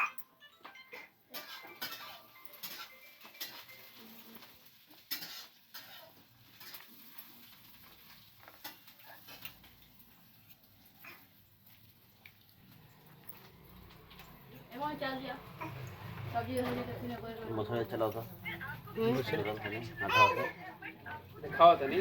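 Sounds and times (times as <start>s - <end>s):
dishes and utensils clinking: 0.0s - 14.8s.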